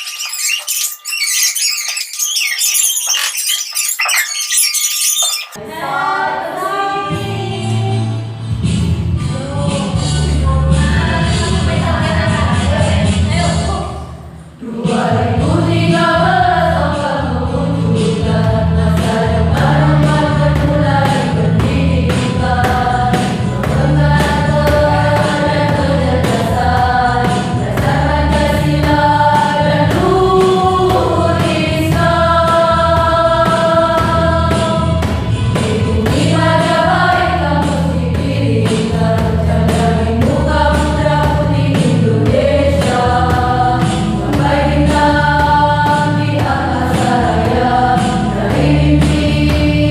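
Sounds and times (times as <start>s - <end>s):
choir singing in parts: 5.6s - 8.4s, 14.2s - 49.9s.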